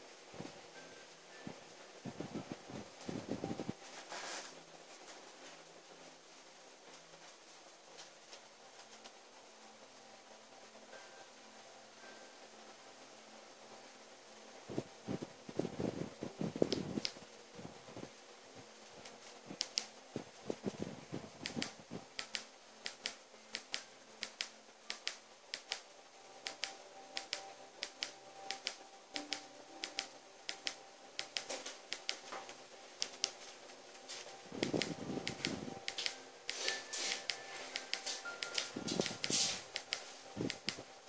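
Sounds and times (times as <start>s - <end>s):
wood fire crackling: 14.6s - 41.0s.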